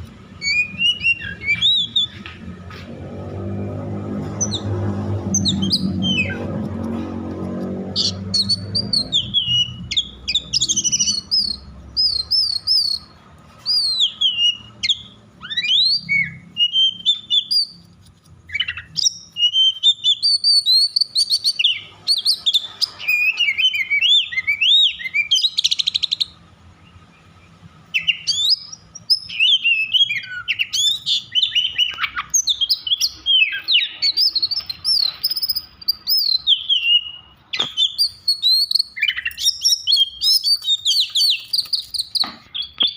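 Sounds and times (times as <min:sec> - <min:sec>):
songbird whistling and chirping: 0:00.3 - 0:02.4, 0:04.2 - 0:06.8, 0:07.9 - 0:42.9.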